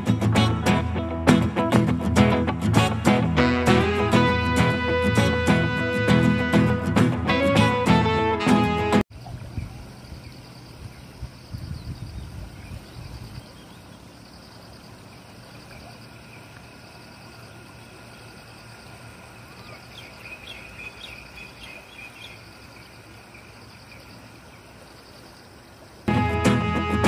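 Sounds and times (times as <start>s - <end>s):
music: 0.0s - 9.0s, 26.1s - 27.0s
birds chirping: 9.2s - 25.9s
rushing water: 12.3s - 27.0s.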